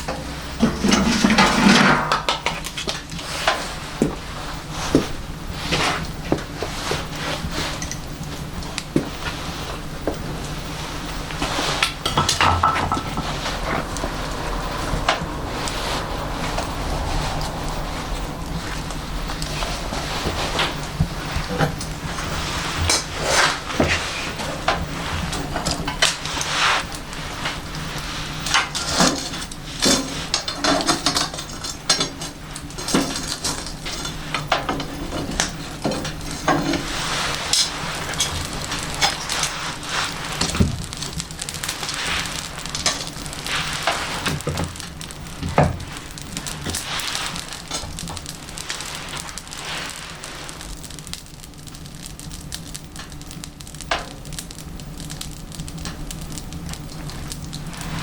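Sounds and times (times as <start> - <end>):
steady low hum: 0.0 - 58.0
wood fire crackling and hissing: 0.0 - 58.0
sharp pops of fire: 1.9 - 58.0.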